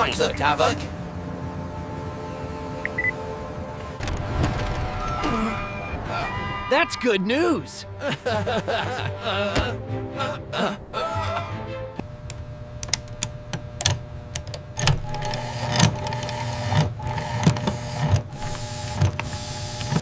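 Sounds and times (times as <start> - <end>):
small motor whirring: 15.0 - 20.0.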